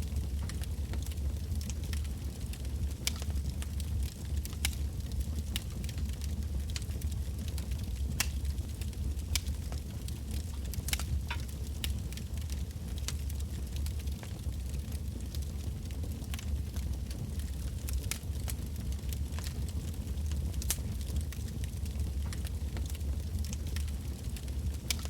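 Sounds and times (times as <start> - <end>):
campfire crackling and popping: 0.0 - 25.0
low rumble of flames: 0.0 - 25.0.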